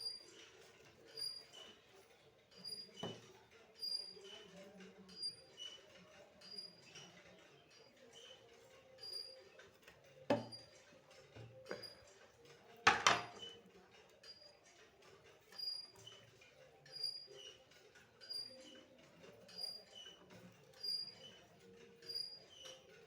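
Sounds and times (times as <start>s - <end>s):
hard items clattering: 12.8s - 13.6s.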